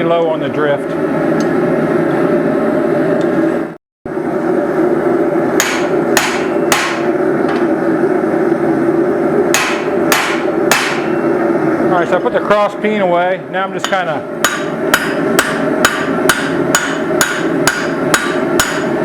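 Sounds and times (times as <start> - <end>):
droning background: 0.0 - 19.0
hammer striking steel on anvil: 5.6 - 7.2, 9.5 - 11.3, 13.8 - 19.0.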